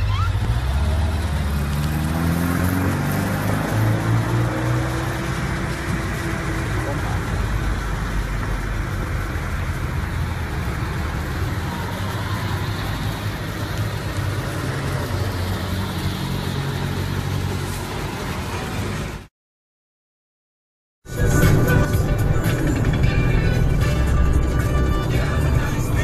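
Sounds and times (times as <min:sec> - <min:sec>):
car engines running: 0:00.0 - 0:19.3, 0:21.1 - 0:26.0
outdoor noise: 0:00.0 - 0:19.3.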